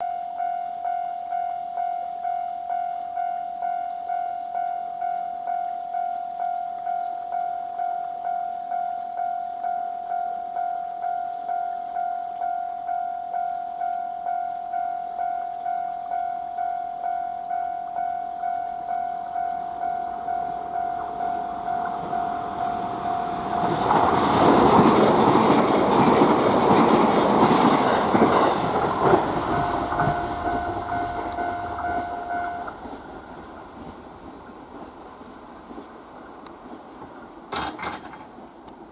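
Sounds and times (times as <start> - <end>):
level crossing alarm bell: 0.0 - 33.9
train passing at high speed: 17.5 - 37.5.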